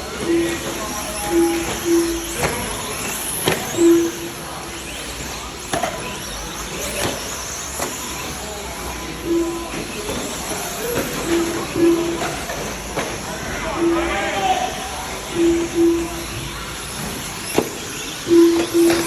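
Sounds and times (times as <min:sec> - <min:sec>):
rc trucks racing: 0:00.0 - 0:19.0
short single-pitched beeps: 0:00.2 - 0:05.1, 0:09.2 - 0:09.8, 0:11.0 - 0:12.6, 0:13.7 - 0:14.4, 0:15.3 - 0:16.6, 0:17.5 - 0:19.0.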